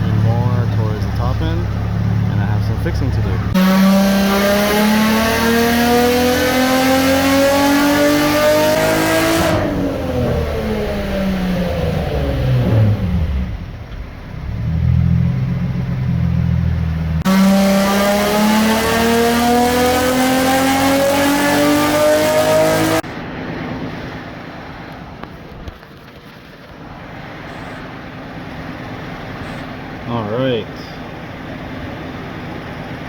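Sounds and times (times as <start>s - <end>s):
car engine revving on dyno: 0.0s - 13.8s, 17.0s - 23.2s
dyno rollers winding down: 0.0s - 15.2s.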